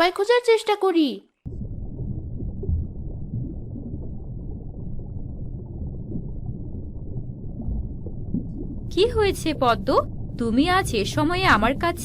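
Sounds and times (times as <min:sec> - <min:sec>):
muffled water rumbling and bubbling: 0:01.5 - 0:12.0.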